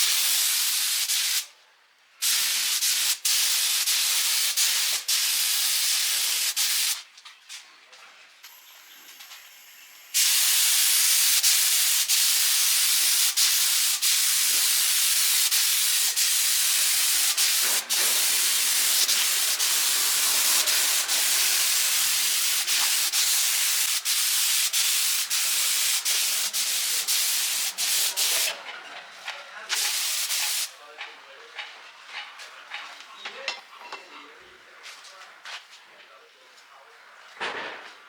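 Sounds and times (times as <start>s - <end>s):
loud steady hiss: 0.0s - 1.5s, 2.2s - 7.0s, 8.5s - 28.6s, 29.7s - 30.8s.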